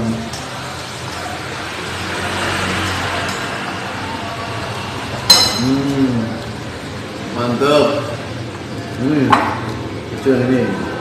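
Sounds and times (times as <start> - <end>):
soft eating noises: 0.0 - 11.0
spoon clinking against dish: 5.3 - 5.8
person humming: 5.6 - 6.4.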